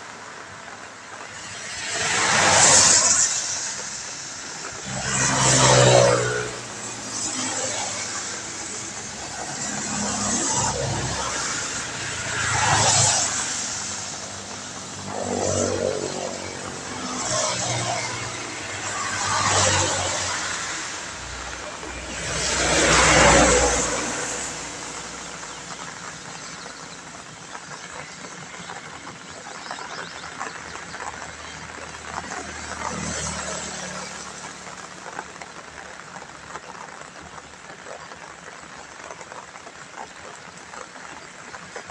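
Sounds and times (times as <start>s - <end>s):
rain hissing: 0.0s - 41.9s
tyres hissing on wet road: 0.0s - 41.9s
vehicle engine passing: 1.4s - 29.1s, 30.4s - 35.6s.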